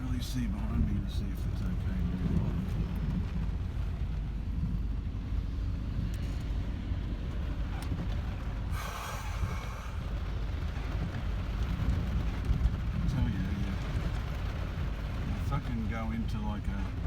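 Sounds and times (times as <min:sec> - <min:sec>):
car engine rumble from inside: 0:00.0 - 0:17.0.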